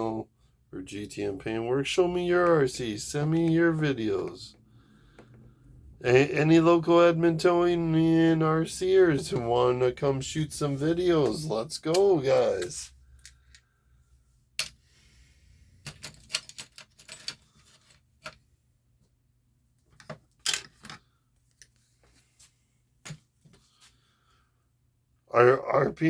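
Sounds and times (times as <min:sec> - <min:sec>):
small parts and tools clattering: 0:15.8 - 0:18.4, 0:19.8 - 0:21.8.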